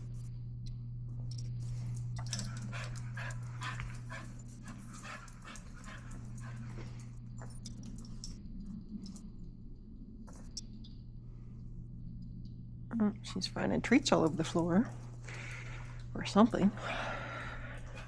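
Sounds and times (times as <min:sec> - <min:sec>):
steady low hum: 0:00.0 - 0:18.0
dog panting: 0:02.2 - 0:07.2.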